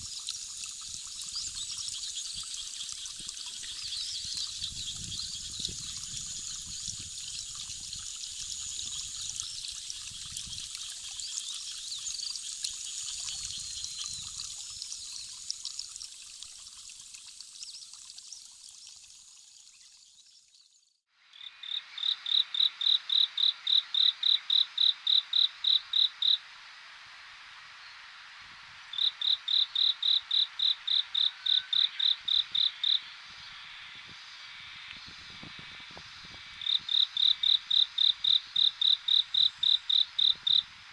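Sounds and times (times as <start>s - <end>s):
insect chirping rapidly: 0.0s - 18.4s, 21.4s - 26.5s, 28.9s - 34.9s, 35.5s - 40.8s
running water: 0.0s - 20.6s
insect hiss: 0.0s - 40.9s
insects and birds: 0.0s - 40.9s.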